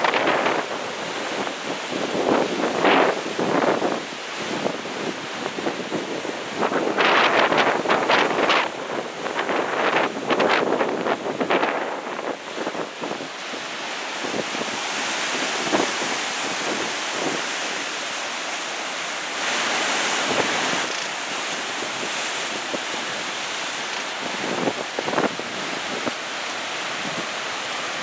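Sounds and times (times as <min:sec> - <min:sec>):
wind buffeting microphone: 0:00.0 - 0:17.6
surf breaking on beach: 0:00.0 - 0:28.0.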